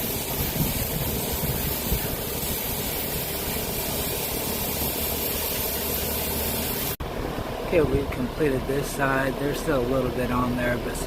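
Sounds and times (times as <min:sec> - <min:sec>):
hose spraying water on metal coils: 0:00.0 - 0:07.0.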